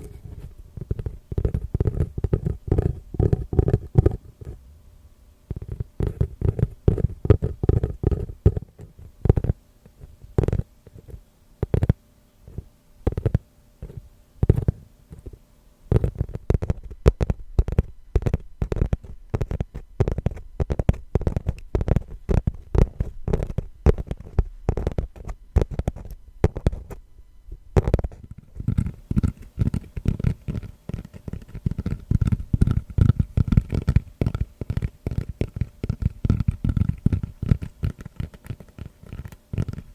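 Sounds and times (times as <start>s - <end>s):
tapping on a trivet: 0.8s - 4.6s, 5.5s - 9.6s, 15.9s - 27.0s, 27.8s - 39.9s.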